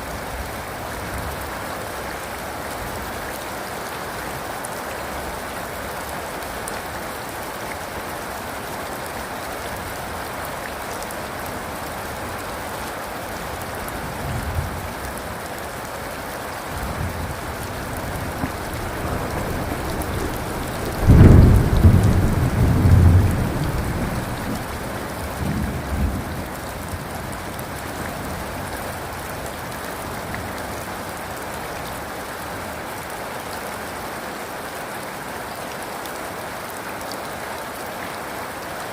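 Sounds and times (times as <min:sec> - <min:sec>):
heavy rain falling: 0:00.0 - 0:38.9
thunder rumbling and clapping: 0:16.9 - 0:26.5.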